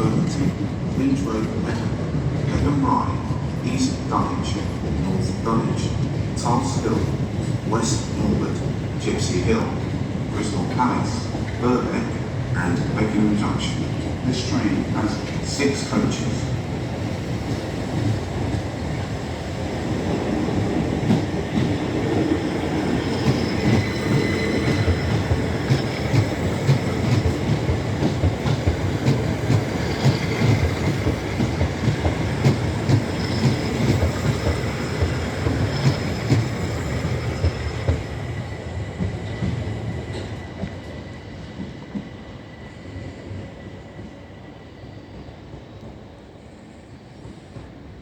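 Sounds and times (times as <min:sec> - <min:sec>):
high wheel squeal: 0:22.8 - 0:26.4, 0:32.3 - 0:38.7.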